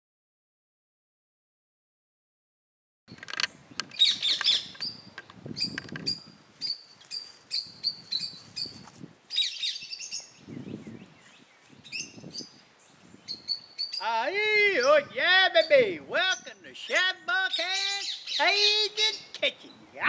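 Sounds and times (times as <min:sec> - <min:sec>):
birds chirping: 0:03.4 - 0:20.0.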